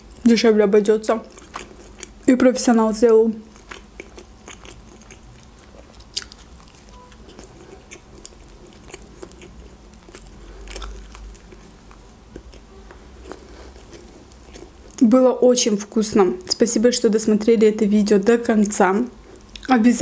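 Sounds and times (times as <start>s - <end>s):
chewing bread: 1.2s - 2.2s, 3.4s - 15.0s.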